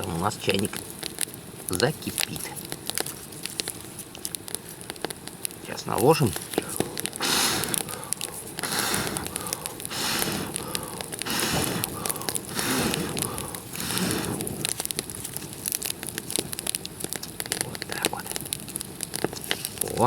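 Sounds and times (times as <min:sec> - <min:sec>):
campfire crackling with pops: 0:00.0 - 0:20.0
rhythmic whooshing rushes: 0:06.6 - 0:14.8.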